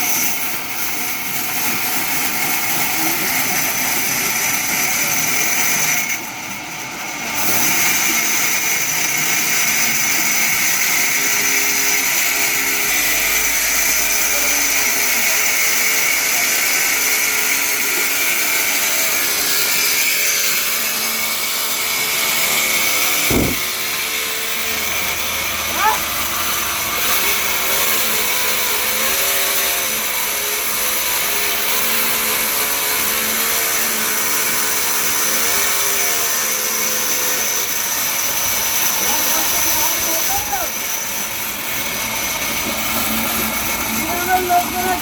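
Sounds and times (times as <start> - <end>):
saw droning and whining: 0.0 - 45.0
sharp knock: 23.3 - 23.8.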